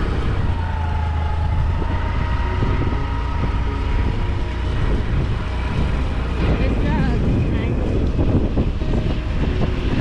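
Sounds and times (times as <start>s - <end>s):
vehicle engine rumble: 0.0s - 10.0s.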